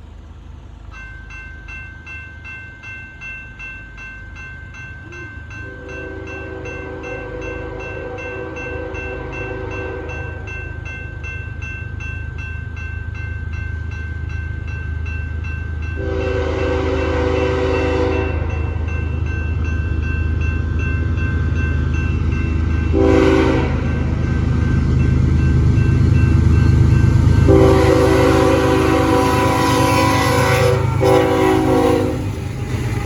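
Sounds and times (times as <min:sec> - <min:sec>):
diesel locomotive rumble: 0:00.0 - 0:33.0
locomotive air horn blasts: 0:05.6 - 0:10.2, 0:16.0 - 0:18.5, 0:22.9 - 0:23.9, 0:27.5 - 0:32.4.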